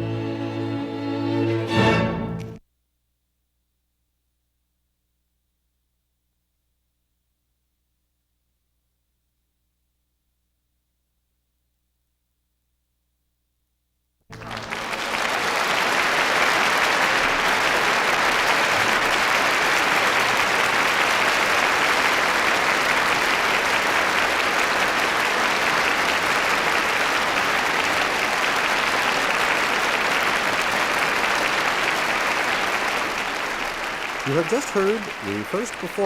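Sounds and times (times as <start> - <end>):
audience applauding: 14.3 - 36.0.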